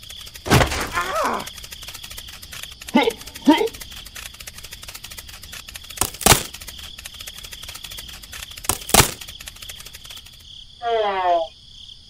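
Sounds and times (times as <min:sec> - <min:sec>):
crickets chirring: 0:00.0 - 0:12.0
sharp double knocks: 0:00.5 - 0:01.5.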